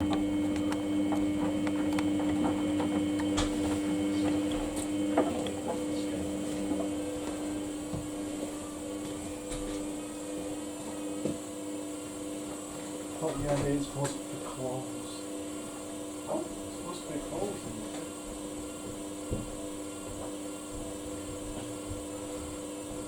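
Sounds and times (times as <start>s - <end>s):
washing machine motor hum: 0.0s - 23.0s.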